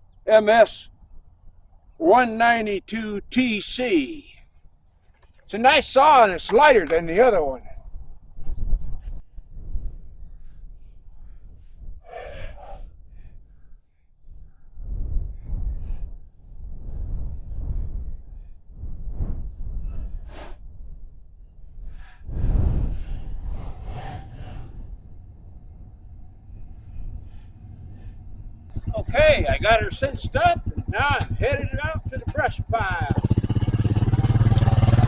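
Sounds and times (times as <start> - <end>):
man breathing hard: 9.9 - 14.7.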